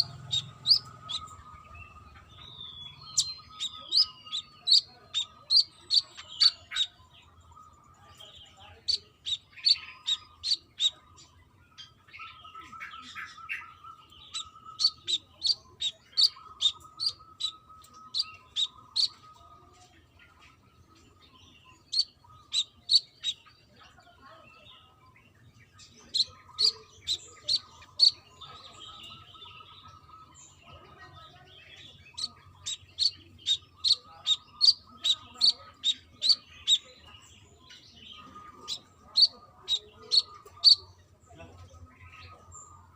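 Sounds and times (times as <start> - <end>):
bird chipping calls: 0.0 - 7.2, 8.7 - 19.4, 21.6 - 23.6, 25.8 - 30.5, 31.4 - 41.2.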